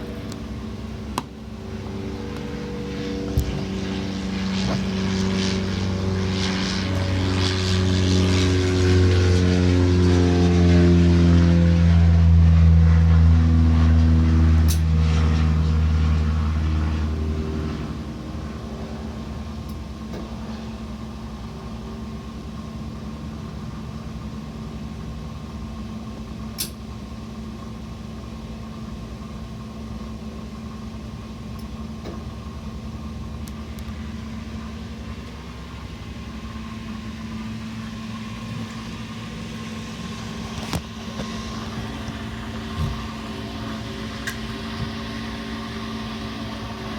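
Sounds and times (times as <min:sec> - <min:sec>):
boat engine running: 0:00.0 - 0:20.4, 0:32.0 - 0:46.9.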